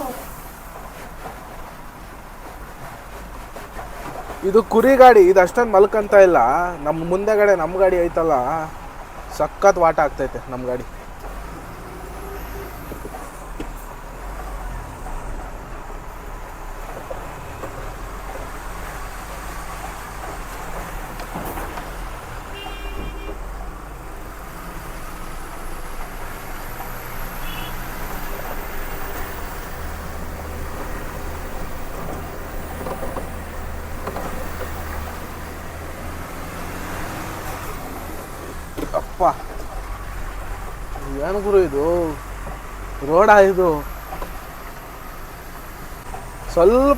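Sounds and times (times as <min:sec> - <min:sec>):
road noise on rough road: 0:00.0 - 0:46.9
truck diesel engine running: 0:00.0 - 0:46.9
short horn toot: 0:22.5 - 0:23.5, 0:27.4 - 0:27.9.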